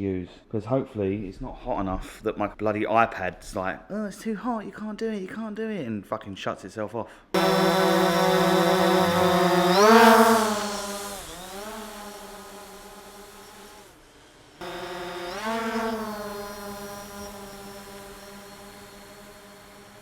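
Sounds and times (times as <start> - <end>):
drone propellers humming: 7.4 - 20.0.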